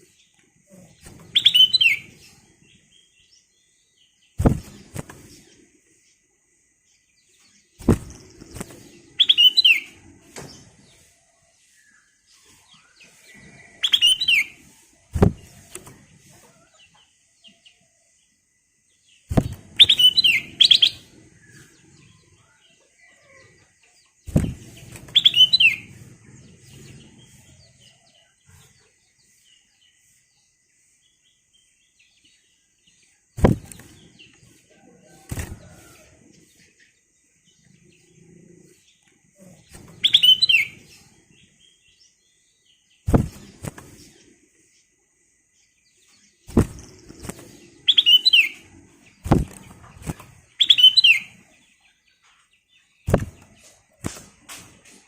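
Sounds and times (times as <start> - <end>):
bird whistled song: 1.2 - 2.2, 9.1 - 10.0, 11.8 - 14.7, 19.3 - 21.7, 25.1 - 26.0, 40.0 - 41.0, 46.6 - 48.7, 50.5 - 51.4.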